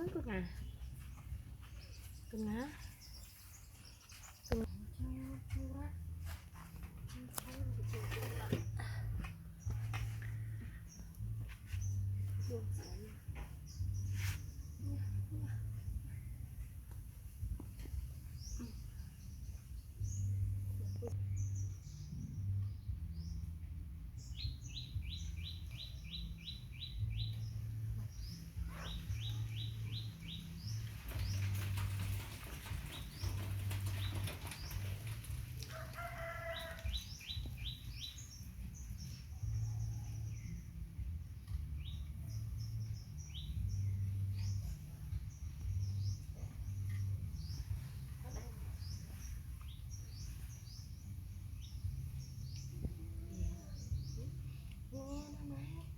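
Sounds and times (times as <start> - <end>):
small birds chirping: 0.0 - 55.9
rustling noise: 0.1 - 8.8, 9.4 - 18.6, 28.0 - 38.9.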